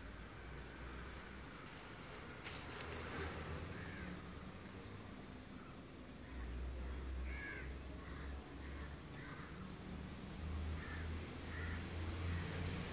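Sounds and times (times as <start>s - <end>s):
distant birds calling: 5.4s - 9.8s, 10.7s - 12.9s.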